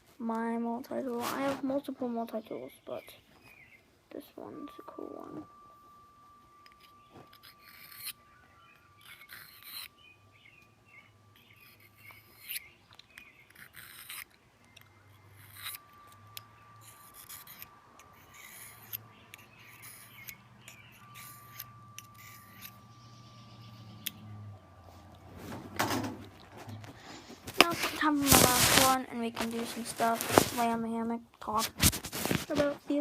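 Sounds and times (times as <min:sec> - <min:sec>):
knife scraping on sharpener: 0:06.6 - 0:10.0, 0:11.4 - 0:22.9.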